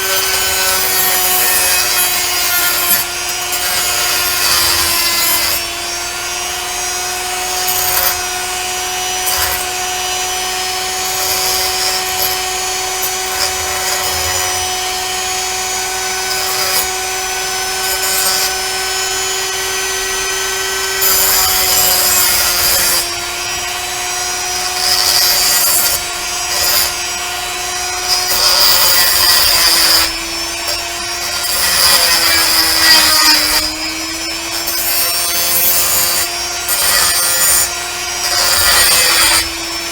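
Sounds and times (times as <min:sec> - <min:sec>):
rotary tool high whine: 0:00.0 - 0:39.9
bit scraping metal: 0:07.4 - 0:19.3.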